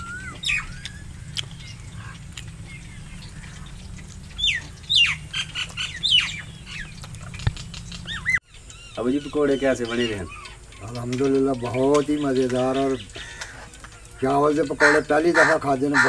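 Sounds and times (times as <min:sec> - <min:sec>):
low background rumble: 0:00.0 - 0:09.0
birds chirping: 0:00.0 - 0:16.0.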